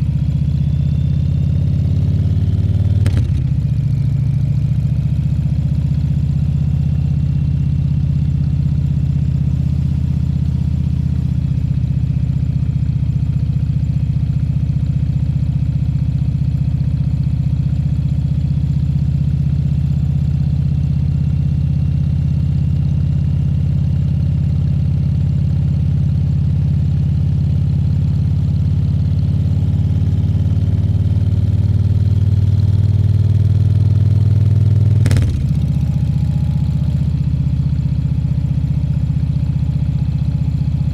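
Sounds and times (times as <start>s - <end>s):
motorcycle engine running: 1.6s - 11.7s, 35.1s - 36.4s.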